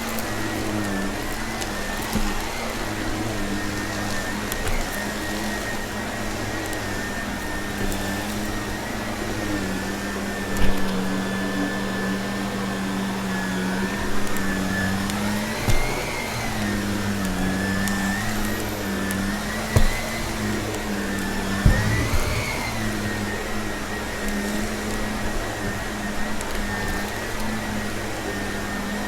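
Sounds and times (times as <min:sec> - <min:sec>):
vacuum cleaner motor whine: 0:00.0 - 0:29.0
loud knocks: 0:21.6 - 0:23.6.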